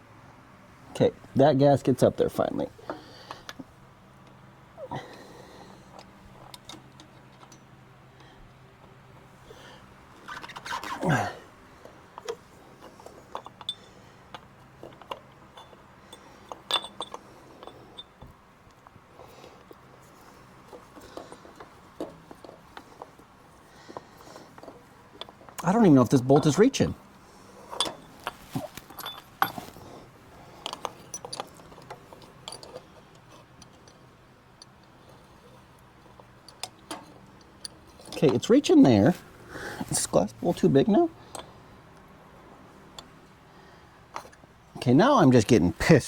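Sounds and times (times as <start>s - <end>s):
small metal parts clinking: 11.8s - 41.8s.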